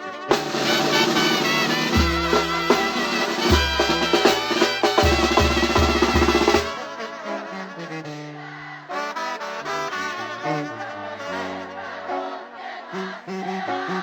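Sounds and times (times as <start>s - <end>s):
drums: 0.0s - 6.9s
brass band playing: 0.0s - 14.0s.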